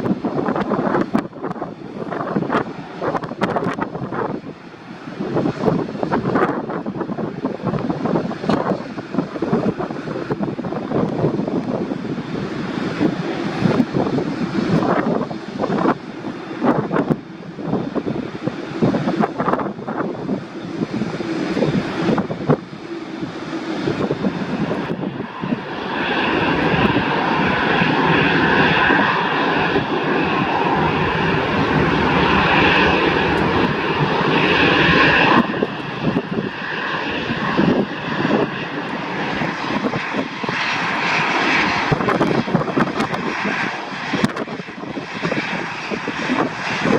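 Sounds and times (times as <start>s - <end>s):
airliner engines rumbling: 0.0s - 46.9s
high engine whine: 20.5s - 40.1s.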